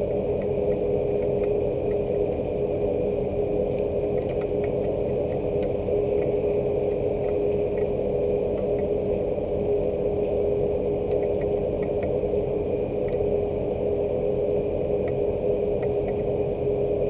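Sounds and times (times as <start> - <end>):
steady machine hum: 0.0 - 17.0
faint ticks: 3.7 - 6.4, 7.2 - 9.0, 11.0 - 12.2, 15.8 - 16.3.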